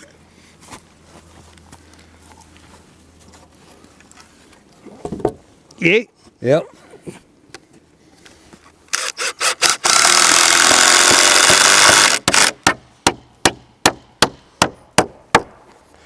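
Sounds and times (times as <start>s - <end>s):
power tool running: 8.9s - 12.6s
hammer nailing wooden board: 10.6s - 15.6s.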